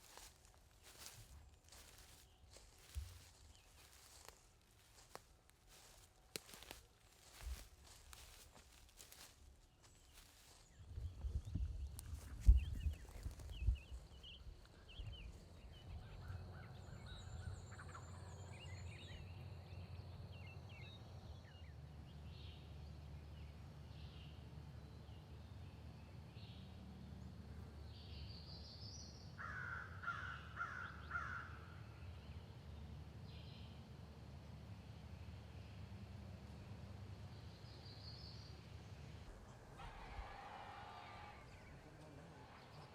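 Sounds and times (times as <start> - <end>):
birds chirping and trilling: 0.0 - 22.6
low outdoor background rumble: 0.0 - 42.9.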